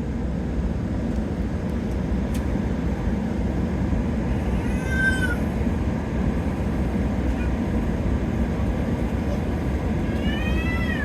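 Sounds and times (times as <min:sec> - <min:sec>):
air conditioning rumble: 0:00.0 - 0:11.0
high-pitched meow-like cry: 0:04.5 - 0:05.4, 0:10.0 - 0:11.0.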